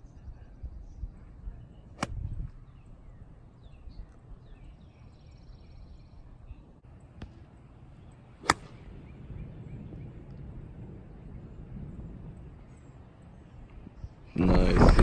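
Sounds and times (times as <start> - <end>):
faint birds chirping: 0.0 - 15.0
low wind rumble: 0.0 - 15.0
golf club striking ball: 8.4 - 8.9.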